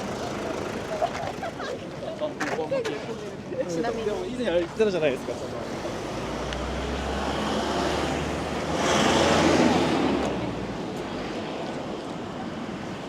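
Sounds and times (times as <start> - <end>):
vehicle engine hum: 0.0 - 2.0
tyre and road noise: 4.6 - 13.0.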